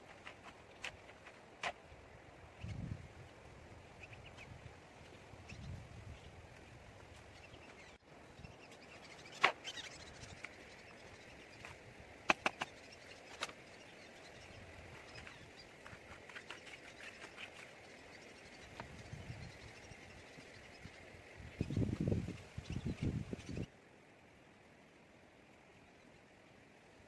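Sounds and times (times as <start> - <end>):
faint steady hiss: 0.0 - 27.0
sharp knocks or clicks: 12.3 - 12.7.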